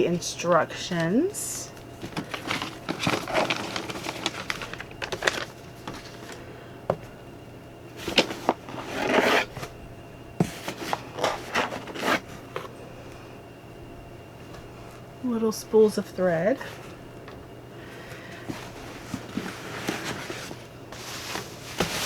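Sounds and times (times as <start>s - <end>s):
paper and packaging rustling: 1.8s - 6.4s, 8.0s - 9.7s, 10.4s - 12.7s, 18.0s - 22.0s.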